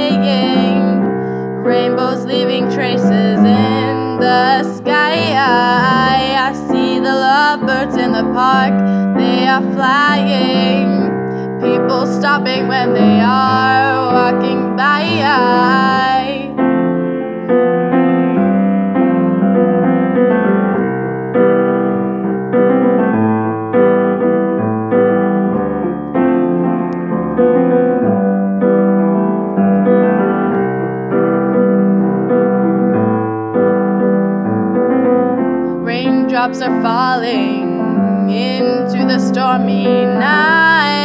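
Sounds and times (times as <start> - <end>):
person singing: 0.0 - 16.5, 35.9 - 41.0
piano playing chords: 0.0 - 41.0.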